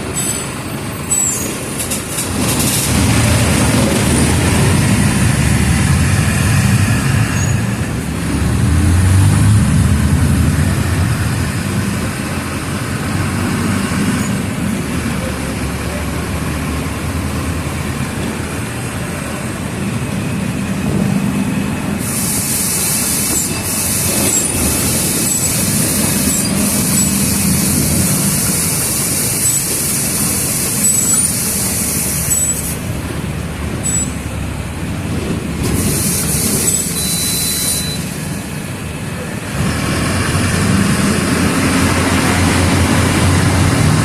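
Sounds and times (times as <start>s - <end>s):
bus diesel engine hum: 0.0s - 44.0s
faint short squeaks: 0.2s - 1.6s, 33.8s - 34.3s, 36.4s - 38.2s
loud high hiss: 22.0s - 33.0s, 35.6s - 38.8s.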